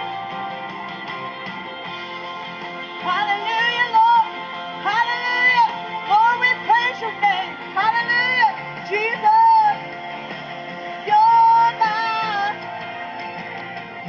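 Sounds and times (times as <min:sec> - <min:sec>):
woman singing: 0:03.0 - 0:09.8, 0:11.0 - 0:12.7.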